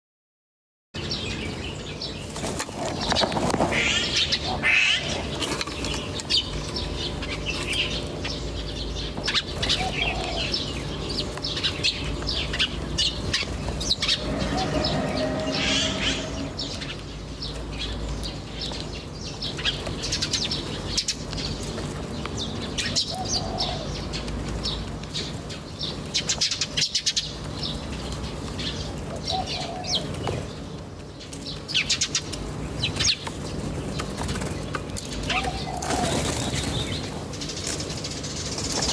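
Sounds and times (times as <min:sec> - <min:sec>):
low bird calls: 0:01.0 - 0:21.6, 0:22.4 - 0:27.8, 0:28.6 - 0:30.7, 0:31.5 - 0:38.9
low steady hum: 0:01.0 - 0:25.1
small birds chirping and twittering: 0:01.0 - 0:38.9.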